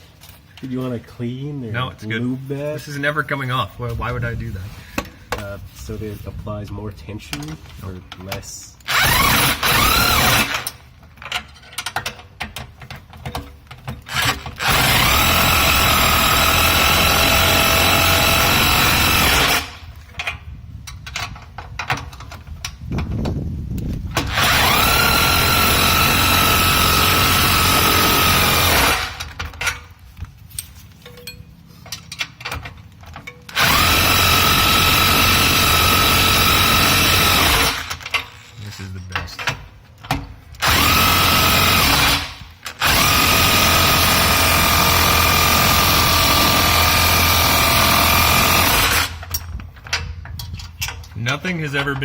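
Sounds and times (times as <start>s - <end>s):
light clatter and handling noise: 0.0s - 1.2s, 3.8s - 8.6s, 29.3s - 33.5s, 38.0s - 40.6s, 49.3s - 52.0s
power tool whining: 8.8s - 10.8s, 14.0s - 20.0s, 24.1s - 29.4s, 33.5s - 38.5s, 40.6s - 49.5s.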